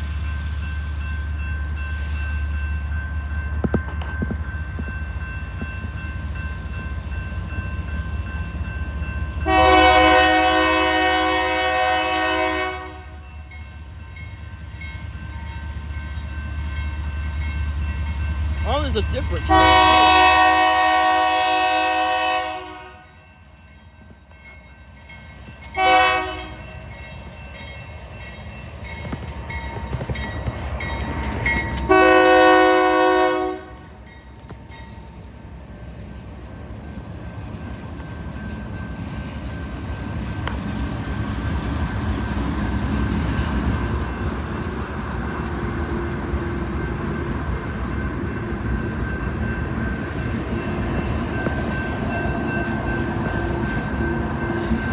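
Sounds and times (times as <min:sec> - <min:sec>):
train rumbling past: 0:00.0 - 0:54.9
locomotive air horn blasts: 0:09.4 - 0:13.2, 0:19.5 - 0:23.0, 0:25.8 - 0:26.6, 0:31.9 - 0:33.8.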